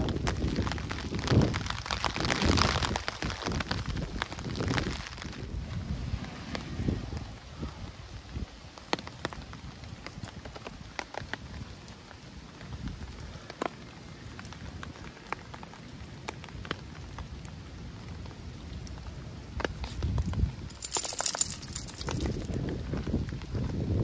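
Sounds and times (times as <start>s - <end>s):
sharp raindrop ticks: 0.0s - 5.5s, 8.8s - 23.6s
rain hiss on pavement: 0.0s - 24.0s.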